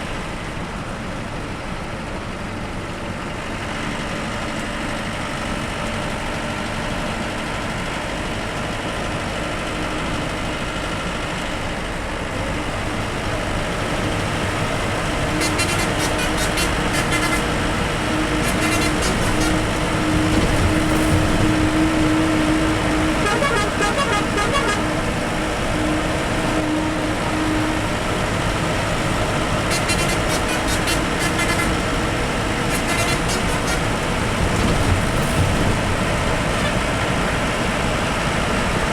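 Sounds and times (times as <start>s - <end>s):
bus engine and road noise: 0.0s - 38.9s
bus horn toots: 14.4s - 35.8s, 36.4s - 37.1s.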